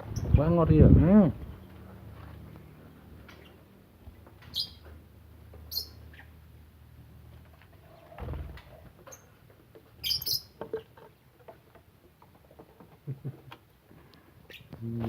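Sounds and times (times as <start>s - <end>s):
lovebirds chirping: 0.0s - 0.4s, 2.7s - 3.8s, 4.4s - 5.0s, 5.6s - 6.6s, 7.8s - 11.0s, 14.4s - 15.0s.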